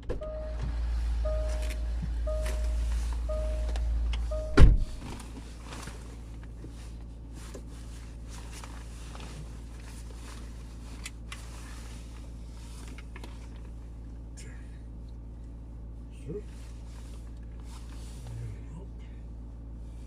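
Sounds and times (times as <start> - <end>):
car warning chime beeping: 0.0 - 5.1
low rumble: 0.0 - 6.5
car door slamming: 2.4 - 5.2.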